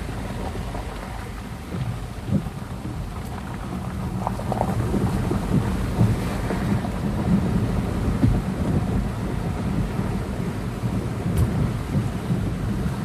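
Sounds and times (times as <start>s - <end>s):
low rumble: 0.0s - 13.0s
rain and running water: 0.0s - 13.0s.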